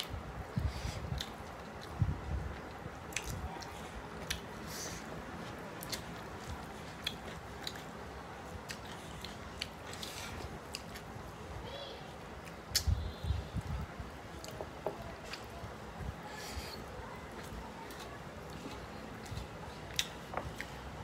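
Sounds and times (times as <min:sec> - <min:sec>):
wet chewing mouth clicks: 0:02.6 - 0:04.6, 0:05.4 - 0:08.0, 0:17.8 - 0:20.8.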